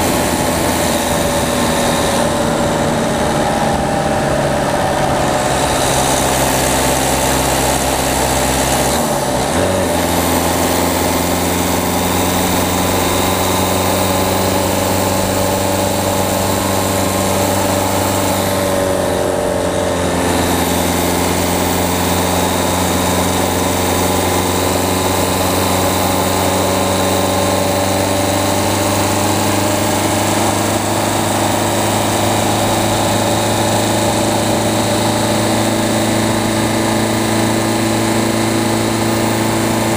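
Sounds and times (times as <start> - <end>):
diesel car engine running: 0.0 - 39.9
road and wind noise: 0.0 - 39.9.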